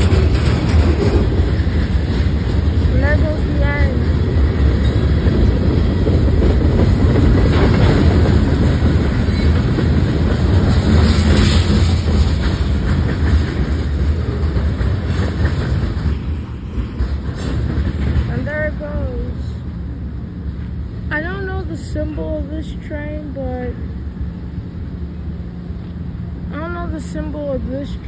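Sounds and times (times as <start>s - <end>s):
train clickety-clack: 0.0s - 23.8s
freight train wheels on rails: 0.0s - 28.0s.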